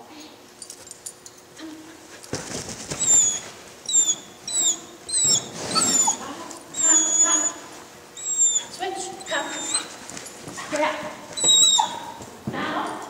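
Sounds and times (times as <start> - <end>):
rustling noise: 2.1 - 3.8
dog whining: 2.9 - 10.1, 11.2 - 12.3.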